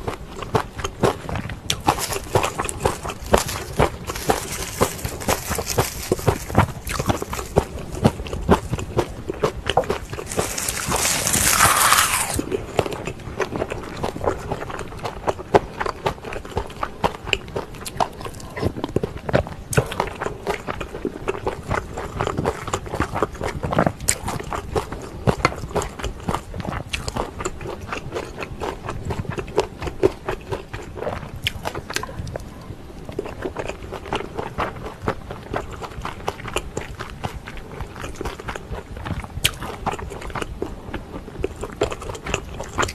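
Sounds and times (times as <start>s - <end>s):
chewing with wet mouth clicks: 0.0s - 42.9s
crackling bite into seaweed wrap: 1.7s - 12.6s.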